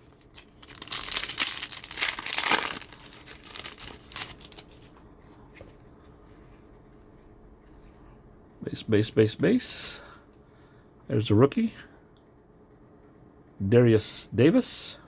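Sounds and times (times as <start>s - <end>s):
wrapper tearing and crinkling: 0.0s - 4.9s
soft rustles and clicks: 0.0s - 8.0s.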